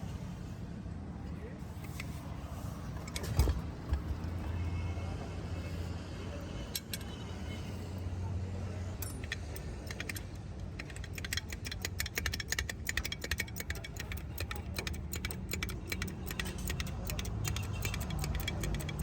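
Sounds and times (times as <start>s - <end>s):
rapid irregular clicking: 9.0s - 19.0s.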